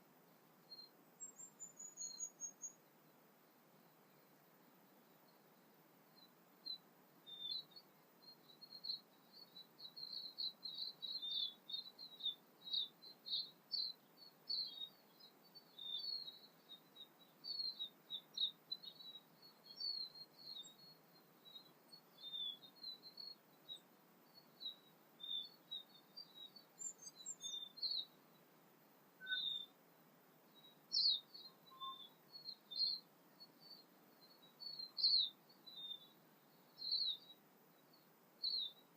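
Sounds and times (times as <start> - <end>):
birds chirping: 0.7 - 38.9.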